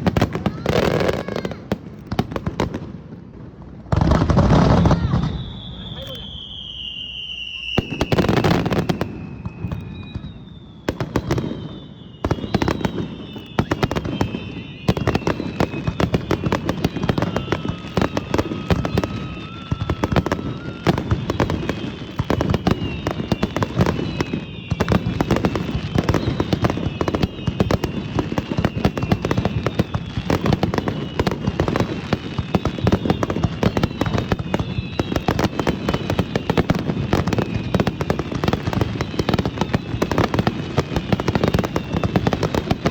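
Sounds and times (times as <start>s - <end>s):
fireworks crackling bangs: 0.0s - 42.9s
fireworks falling whistles: 0.0s - 42.9s.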